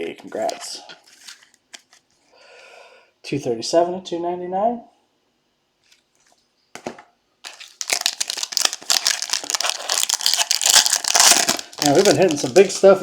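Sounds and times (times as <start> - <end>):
plastic wrapping crinkling: 7.4 - 13.0.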